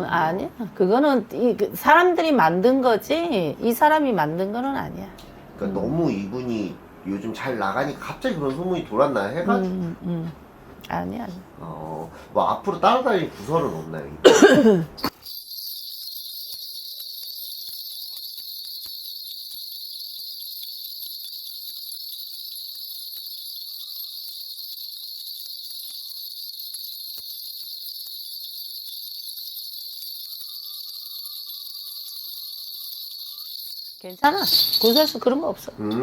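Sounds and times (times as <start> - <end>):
brass bells jingling: 14.2 - 36.0.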